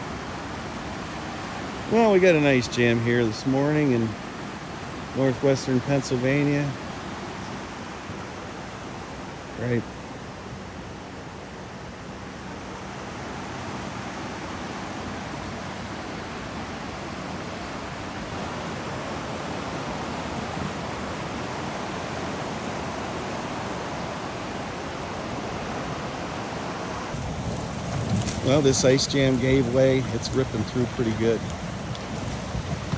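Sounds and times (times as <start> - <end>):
creek water rushing: 0.0 - 32.9.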